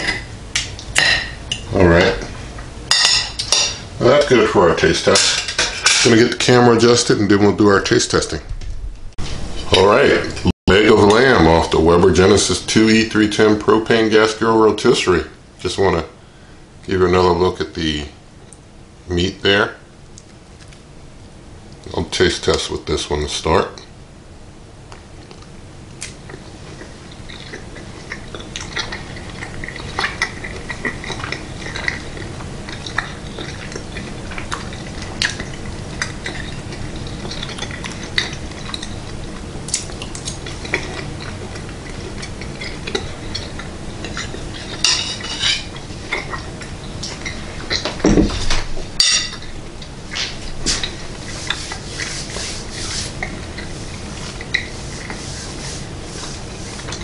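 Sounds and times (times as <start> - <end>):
chewing with wet mouth clicks: 24.9 - 44.8, 45.7 - 47.9.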